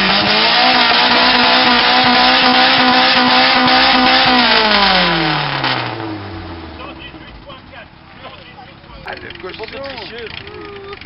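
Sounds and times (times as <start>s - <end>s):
engine revving through loud exhaust: 0.0s - 7.0s.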